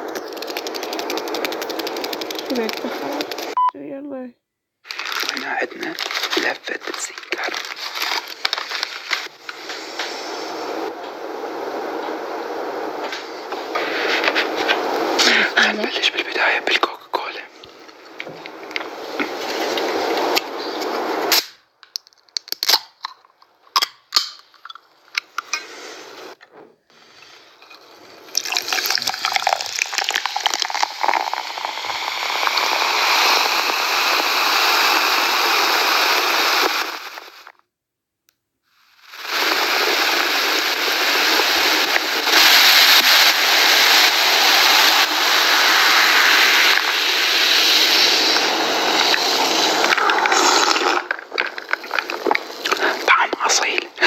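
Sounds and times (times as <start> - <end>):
soda fizzing: 0.0 - 3.6, 4.9 - 9.8, 27.0 - 36.7, 39.2 - 54.0
sharp clicks and pops: 0.0 - 3.8, 4.8 - 10.1, 13.0 - 25.7, 39.1 - 54.0.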